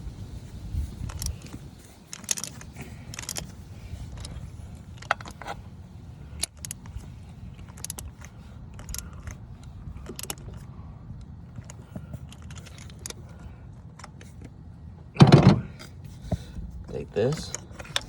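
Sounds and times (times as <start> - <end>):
steady low rumble: 0.0 - 18.0
ratchet clicking: 1.0 - 5.6, 6.4 - 10.7, 11.6 - 13.4
metal tools clinking: 2.1 - 5.6, 11.5 - 14.4.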